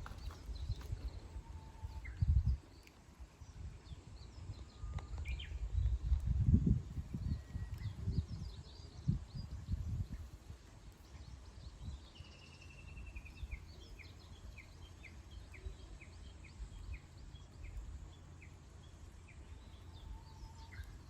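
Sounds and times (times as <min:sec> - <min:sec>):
birds chirping: 0:00.0 - 0:06.1, 0:06.9 - 0:21.0
wind gusts on microphone: 0:00.0 - 0:12.2
whistled bird notes: 0:04.3 - 0:05.6.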